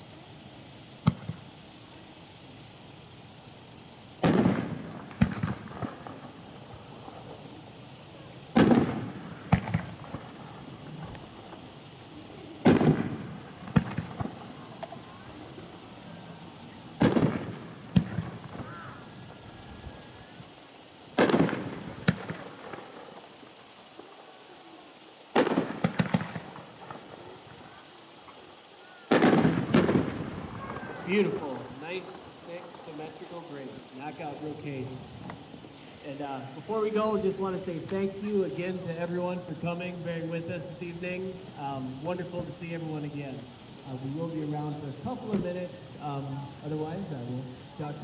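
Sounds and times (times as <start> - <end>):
firework sharp report: 0.0 - 48.0
small firework cracks: 0.0 - 48.0
firework boom with rumbling tail: 4.2 - 6.3, 8.6 - 11.2, 12.6 - 15.0, 17.0 - 19.0, 21.2 - 22.8, 29.1 - 33.2.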